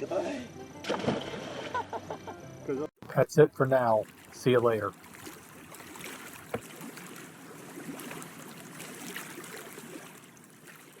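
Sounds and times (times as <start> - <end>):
water lapping against boat hull: 3.0 - 11.0.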